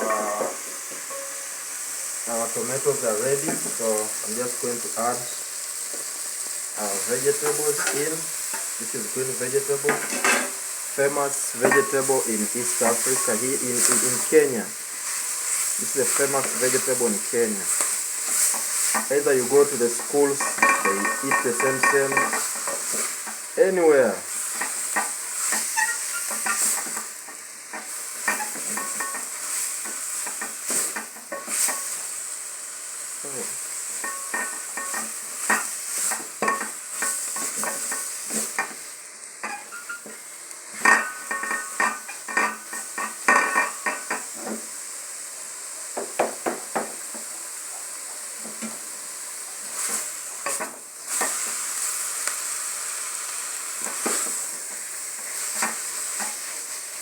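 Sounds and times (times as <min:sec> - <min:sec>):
food sizzling in a pan: 0:00.0 - 0:57.0
metal spoon scraping a pan: 0:07.4 - 0:08.7, 0:09.9 - 0:10.6, 0:11.6 - 0:12.1, 0:12.8 - 0:14.3, 0:17.7 - 0:23.4, 0:24.5 - 0:27.0, 0:27.7 - 0:32.0, 0:39.4 - 0:40.2, 0:40.8 - 0:44.2.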